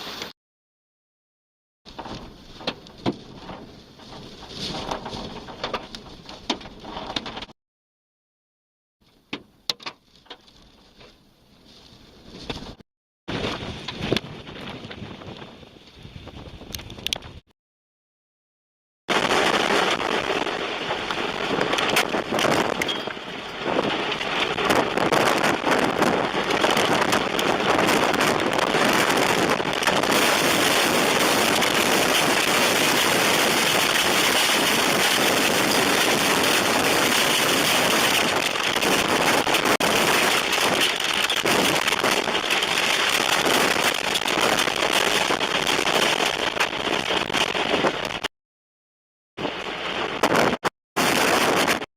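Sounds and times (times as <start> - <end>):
rain and debris pelting car: 1.9 - 7.5, 19.1 - 48.3, 49.4 - 51.9
wind roaring: 1.9 - 7.5, 12.2 - 17.4, 19.1 - 48.3, 49.4 - 51.9.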